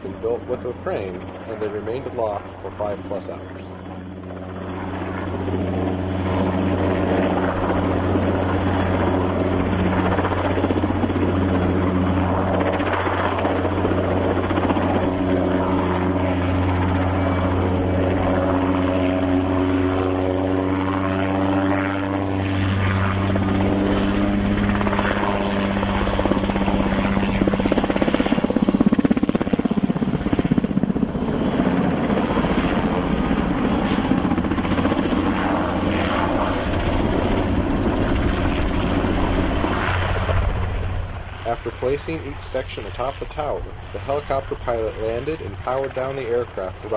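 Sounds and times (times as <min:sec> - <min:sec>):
helicopter rotor and engine: 0:00.0 - 0:46.9.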